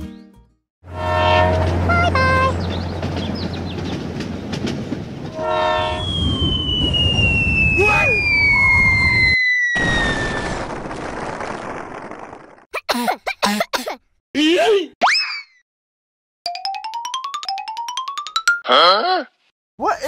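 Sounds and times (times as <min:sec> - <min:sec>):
train horn blast: 0:00.9 - 0:02.6, 0:05.3 - 0:06.0
train rumbling on rails: 0:00.9 - 0:07.7
whistle sliding down in pitch: 0:05.8 - 0:10.2.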